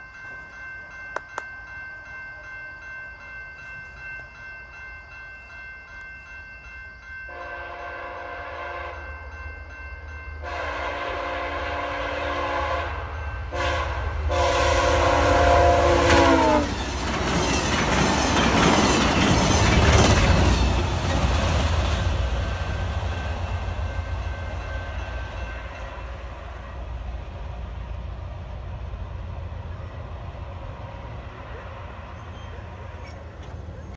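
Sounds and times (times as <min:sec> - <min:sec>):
train horn chord: 0:07.3 - 0:09.1, 0:10.4 - 0:16.8
train wheels clacking: 0:15.9 - 0:26.2.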